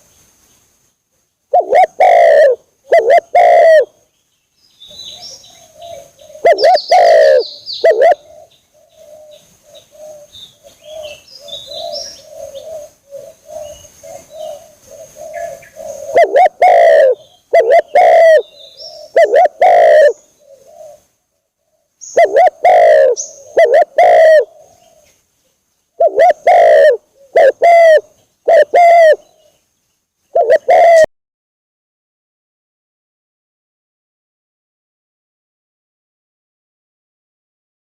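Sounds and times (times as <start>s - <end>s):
faint high chirping: 0.0s - 31.1s
dove cooing: 1.5s - 4.0s, 4.9s - 25.2s, 26.0s - 29.6s, 30.3s - 31.1s.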